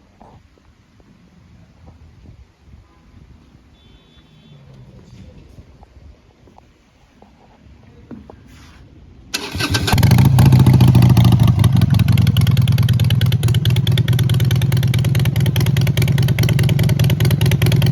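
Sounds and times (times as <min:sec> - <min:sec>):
electric starter cranking: 0:09.4 - 0:10.9
motorcycle engine idling: 0:09.4 - 0:17.9.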